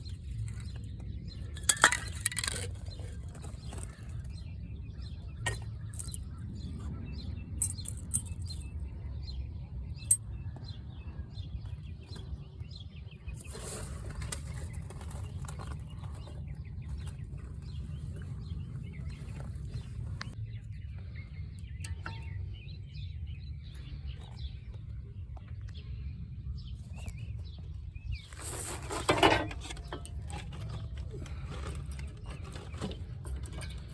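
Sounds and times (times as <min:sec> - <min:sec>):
rustling noise: 0:13.3 - 0:20.4, 0:26.8 - 0:33.9.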